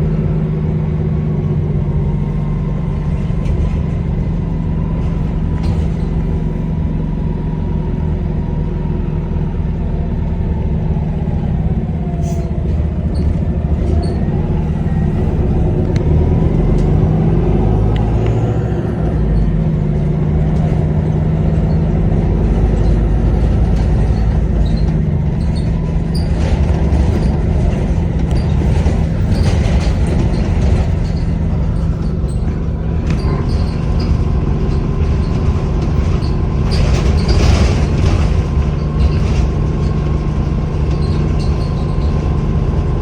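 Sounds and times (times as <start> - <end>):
bus diesel engine rumble: 0.0 - 43.0.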